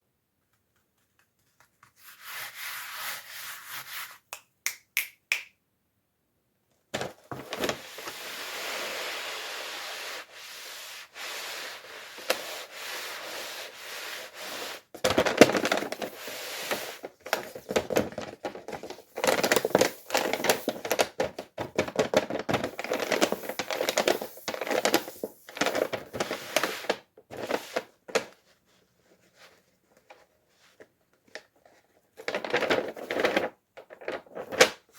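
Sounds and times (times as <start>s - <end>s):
packaging rubbing and scratching: 7.4s - 27.9s.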